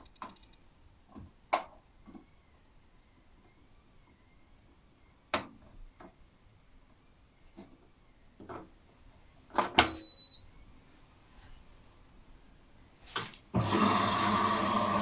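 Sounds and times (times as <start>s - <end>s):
water filling washing machine drum: 13.6s - 15.0s.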